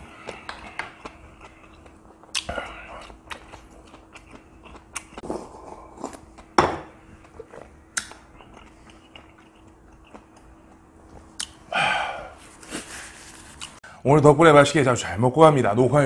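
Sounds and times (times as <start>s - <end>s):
person chewing: 0.0s - 13.8s
wet smacks and lip clicks: 0.3s - 5.2s, 7.9s - 11.6s.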